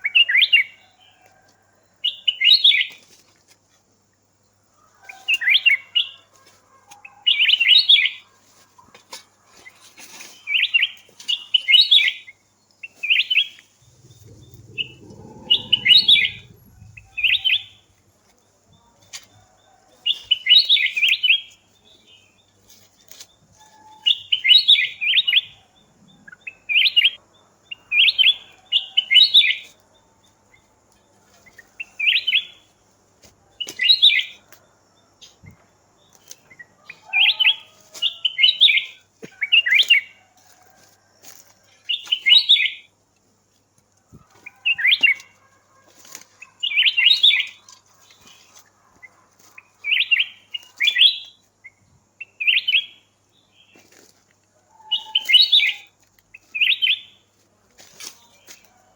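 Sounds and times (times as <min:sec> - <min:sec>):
songbird chirping: 0:04.3 - 0:58.9
low rumble: 0:13.8 - 0:17.6.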